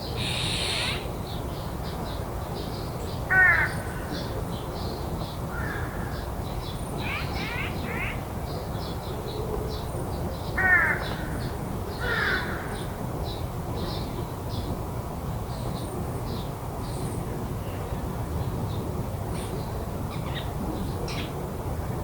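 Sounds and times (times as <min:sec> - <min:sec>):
crow cawing: 0:00.2 - 0:01.0, 0:03.3 - 0:03.8, 0:12.0 - 0:12.6.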